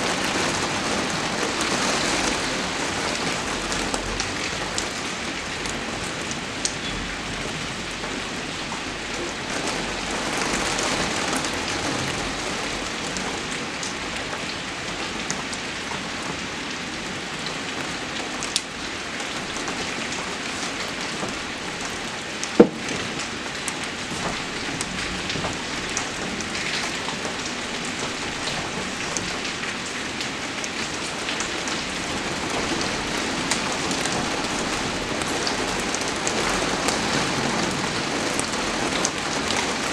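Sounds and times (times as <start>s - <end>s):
rain falling on a surface: 0.0s - 39.9s
sharp tap: 22.6s - 23.0s.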